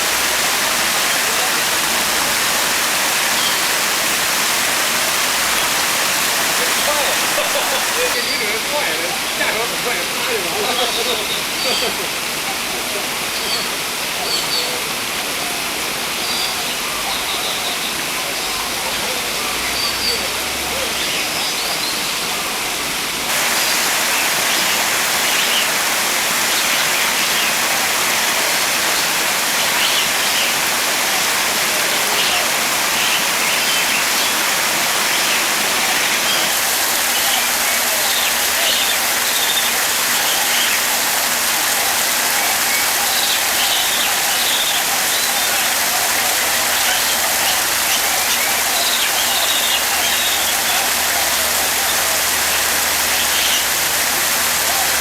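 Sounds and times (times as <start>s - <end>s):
falling water hissing: 0.0s - 55.0s.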